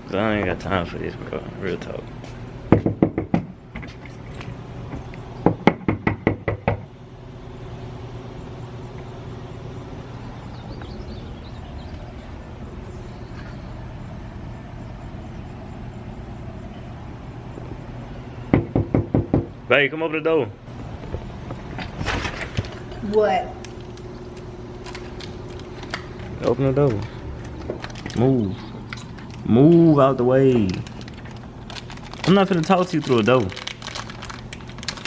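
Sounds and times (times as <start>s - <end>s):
steady low hum: 0.0s - 35.0s
knuckles knocking on door: 2.7s - 3.5s, 18.5s - 19.5s.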